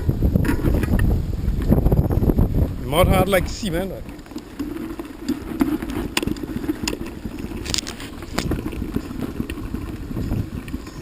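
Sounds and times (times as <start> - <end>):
clicks and rattles: 3.5 - 11.0.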